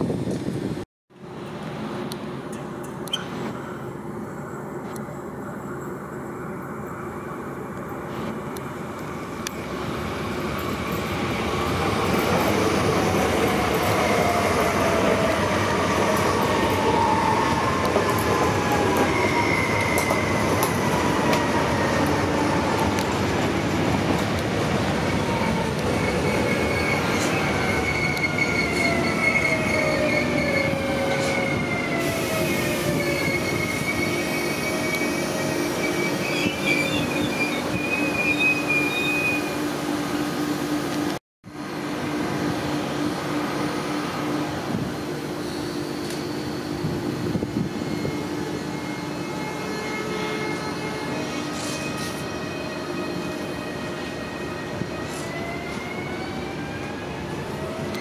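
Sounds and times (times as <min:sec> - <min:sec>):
wheels squealing on track: 0:25.3 - 0:31.6, 0:32.4 - 0:39.6.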